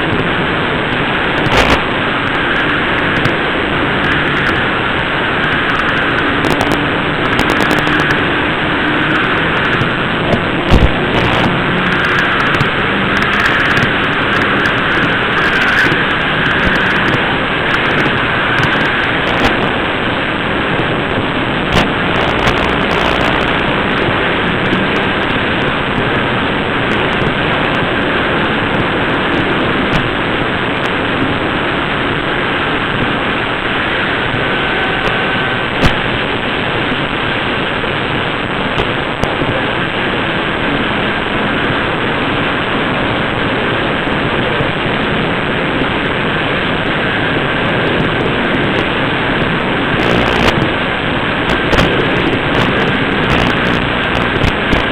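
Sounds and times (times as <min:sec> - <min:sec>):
sharp clicks: 0:04.0 - 0:08.3, 0:09.1 - 0:19.6.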